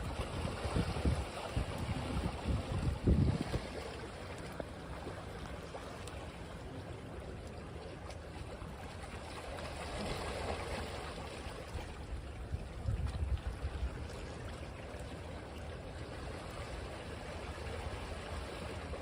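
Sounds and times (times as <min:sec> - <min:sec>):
sea waves washing on beach: 0:00.0 - 0:19.0.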